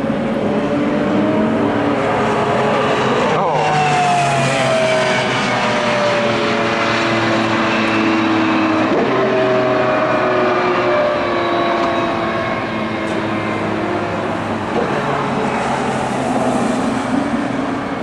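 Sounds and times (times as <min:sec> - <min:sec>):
racing car engines passing: 0:00.0 - 0:18.0.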